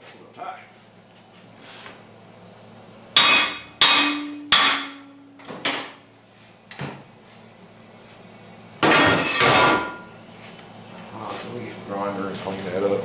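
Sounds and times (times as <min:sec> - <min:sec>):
hammer striking steel: 0:03.2 - 0:05.2.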